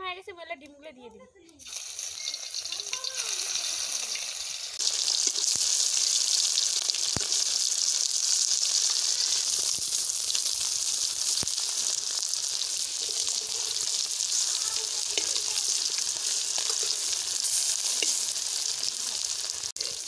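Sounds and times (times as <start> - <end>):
food sizzling in hot oil: 1.6 - 20.0
metal spatula tapping pan: 15.0 - 15.7, 17.9 - 18.3.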